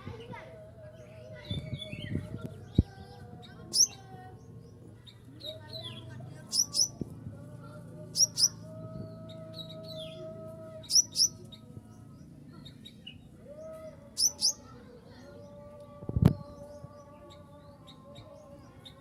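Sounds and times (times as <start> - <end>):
sunbird chirping: 3.5 - 4.2, 5.5 - 7.0, 8.1 - 8.6, 9.2 - 11.4, 13.0 - 14.7.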